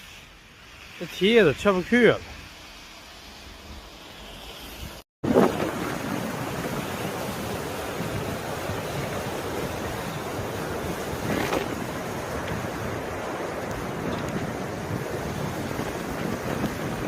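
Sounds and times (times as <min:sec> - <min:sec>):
blizzard wind on microphone: 0:03.4 - 0:17.0.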